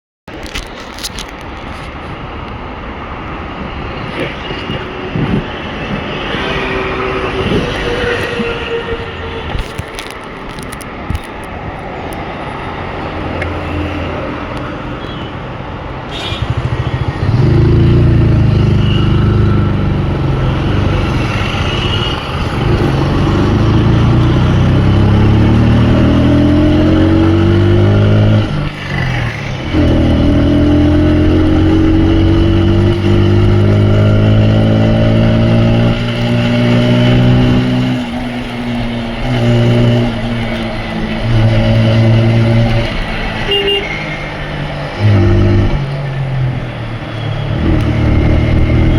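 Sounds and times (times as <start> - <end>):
road traffic noise: 0.3 - 48.9
motorcycle engine accelerating: 16.2 - 48.9.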